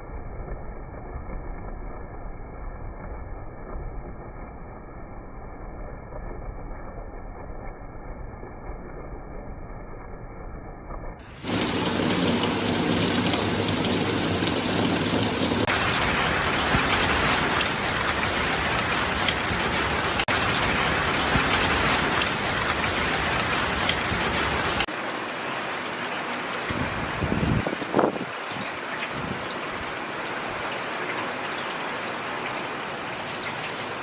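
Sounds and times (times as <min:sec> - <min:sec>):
steady rain hissing: 0:11.3 - 0:34.0
raindrops ticking: 0:11.4 - 0:24.9.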